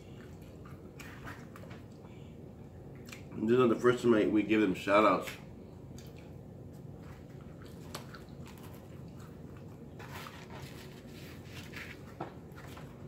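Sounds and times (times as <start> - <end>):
person chewing with mouth clicks: 2.9 - 3.3, 5.9 - 6.4.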